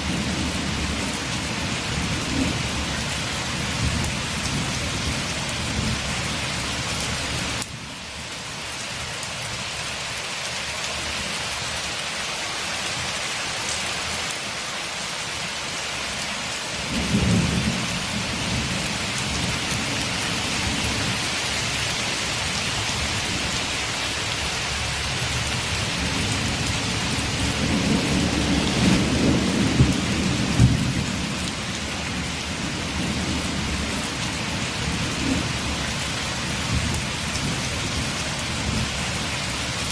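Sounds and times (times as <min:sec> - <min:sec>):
rain on a window: 0:00.0 - 0:39.9
thunder rumbling: 0:25.3 - 0:35.8.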